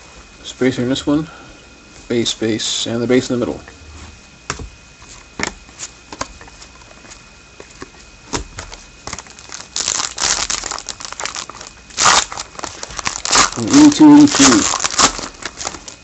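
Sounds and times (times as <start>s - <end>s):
card pack wrapper tearing: 9.1s - 16.0s.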